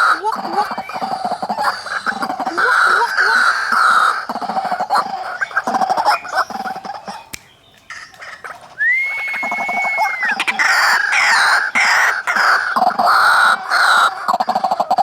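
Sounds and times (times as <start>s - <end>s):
waterhens calling harshly: 0.0s - 15.0s
long level whistle: 8.8s - 10.4s.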